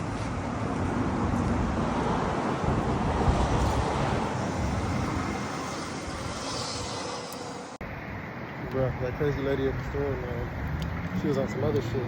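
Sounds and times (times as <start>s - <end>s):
wind buffeting microphone: 0.0s - 7.0s
traffic noise: 0.0s - 12.0s.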